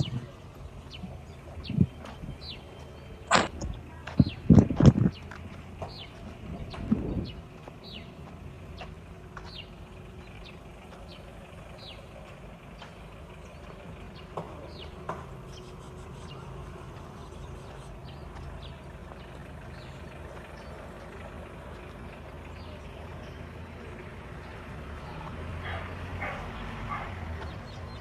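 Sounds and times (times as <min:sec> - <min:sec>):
bird chirping: 0:00.0 - 0:21.2
distant traffic rumble: 0:00.0 - 0:28.0
sharp knocks: 0:03.3 - 0:05.2.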